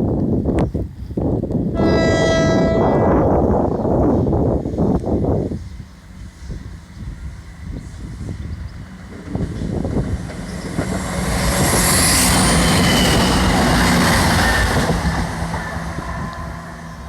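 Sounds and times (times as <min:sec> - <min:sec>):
train wheels rushing on rail: 0:00.0 - 0:17.0
train wheels knocking: 0:09.1 - 0:15.7.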